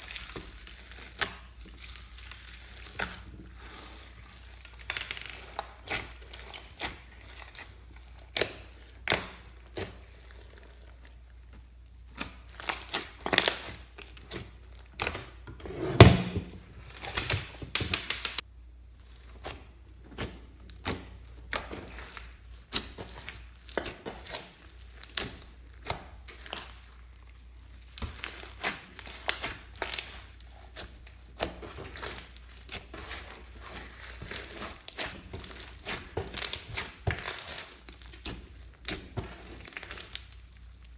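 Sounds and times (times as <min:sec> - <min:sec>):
hands squishing slime: 0:00.0 - 0:15.4, 0:16.1 - 0:40.9.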